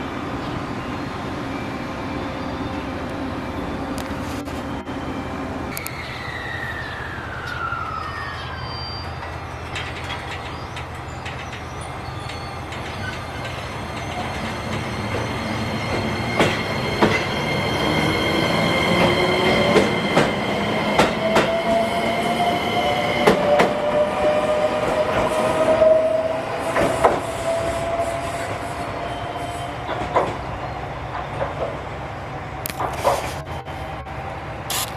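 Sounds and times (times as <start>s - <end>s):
train moving: 0.0s - 34.9s
wheels clicking over rail joints: 9.2s - 15.2s.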